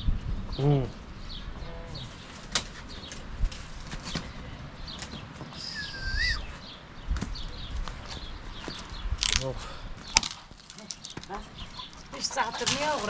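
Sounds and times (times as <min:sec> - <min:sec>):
small birds chirping: 0:00.5 - 0:13.0
whistled note dipping and rising: 0:05.6 - 0:06.4.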